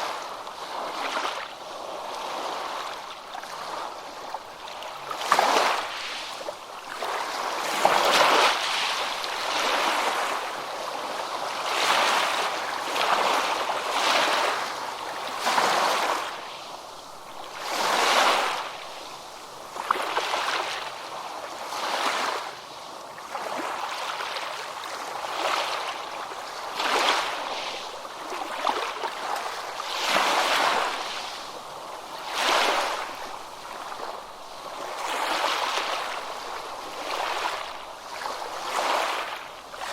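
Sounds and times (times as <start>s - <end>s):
ocean waves washing onto beach: 0.0s - 39.9s.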